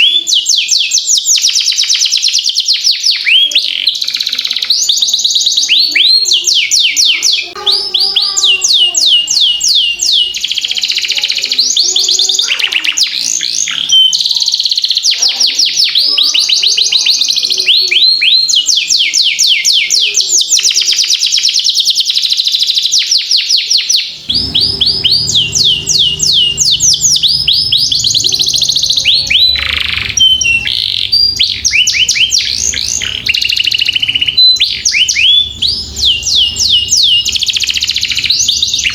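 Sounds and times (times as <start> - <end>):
canary singing trills: 0.0 - 38.9
low hum: 24.2 - 38.9.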